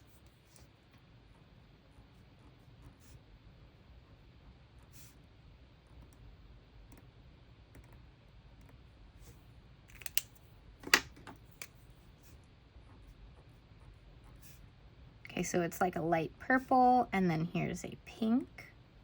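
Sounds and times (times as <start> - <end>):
pen caps clicking: 9.9 - 11.0.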